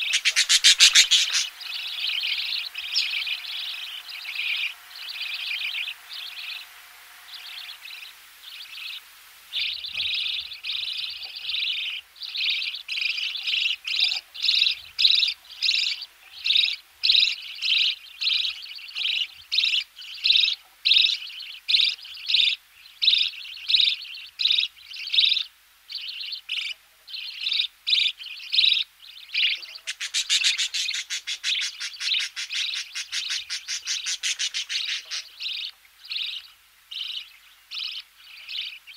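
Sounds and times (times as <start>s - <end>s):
chicks begging calls: 0.0s - 19.9s, 29.4s - 36.4s.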